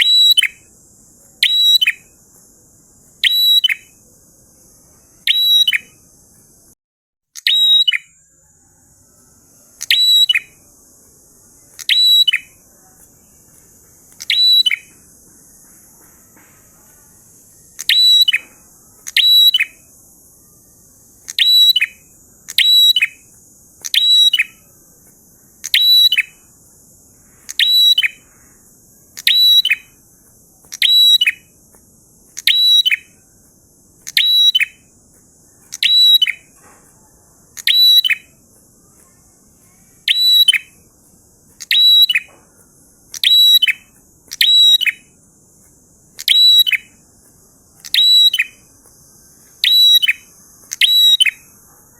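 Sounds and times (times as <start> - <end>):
faint high hiss: 0.0 - 6.8
bird calling sharp high notes: 3.2 - 4.0, 7.4 - 8.2, 14.2 - 15.0, 27.2 - 30.0, 30.7 - 31.5, 37.6 - 40.9, 41.6 - 42.3, 43.1 - 45.1, 46.2 - 47.0, 47.8 - 48.7, 49.6 - 51.6.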